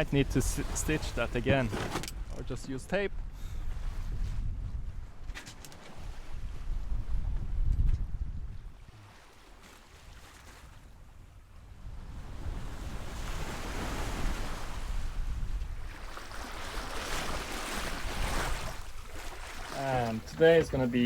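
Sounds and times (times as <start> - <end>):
sea waves rushing: 0.0 - 1.7, 15.9 - 21.0
wind on microphone: 0.0 - 9.1, 10.8 - 19.0.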